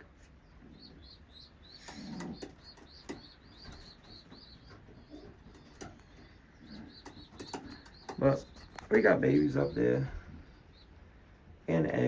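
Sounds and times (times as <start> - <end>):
pigeon cooing: 0.7 - 10.3.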